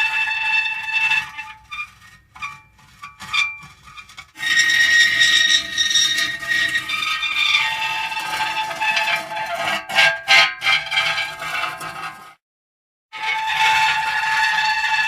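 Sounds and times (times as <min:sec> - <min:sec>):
metal creaking and squealing: 0:00.0 - 0:12.3, 0:13.2 - 0:15.0.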